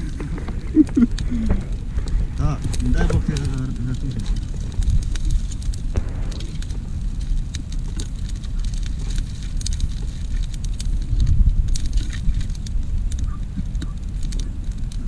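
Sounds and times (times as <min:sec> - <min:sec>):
campfire popping and snapping: 0:00.0 - 0:15.0
wind rumble on microphone: 0:00.0 - 0:15.0.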